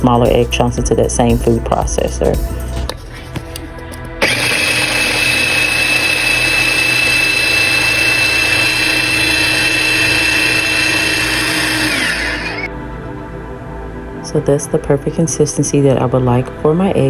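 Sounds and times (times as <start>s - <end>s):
food processor running: 4.2s - 12.7s.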